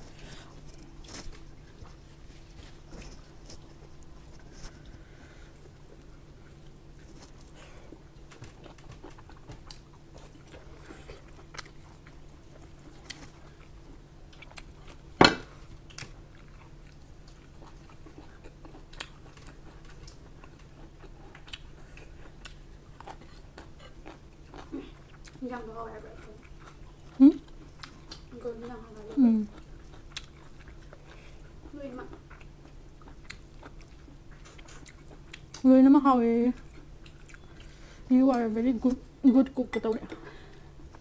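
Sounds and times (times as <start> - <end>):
chewing with wet clicks: 2.6 - 41.0.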